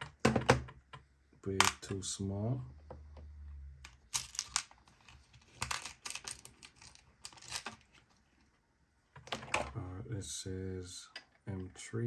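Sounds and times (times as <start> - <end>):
screws clicking and rustling: 3.9 - 8.1.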